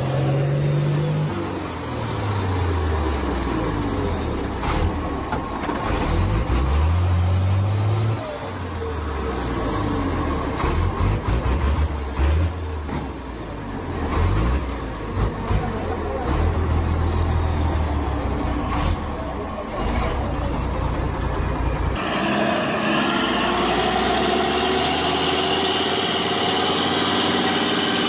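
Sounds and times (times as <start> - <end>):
heavy truck engine revving: 0.0 - 28.0
clunks: 4.4 - 6.7.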